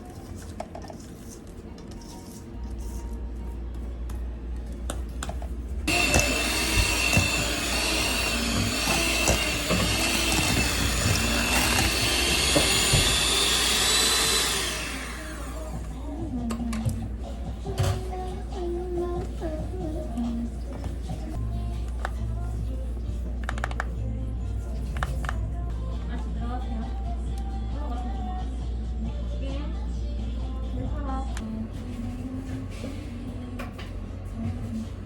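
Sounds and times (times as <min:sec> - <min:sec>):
kitchen appliance motor whirring: 0:05.9 - 0:16.0.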